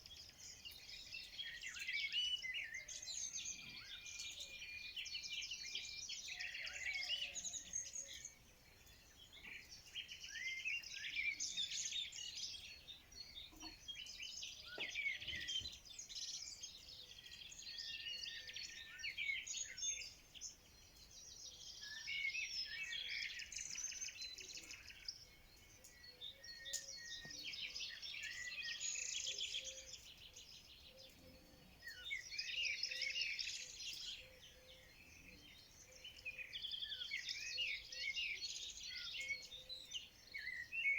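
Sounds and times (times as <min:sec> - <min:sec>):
songbirds singing and chirping: 0:00.0 - 0:40.9.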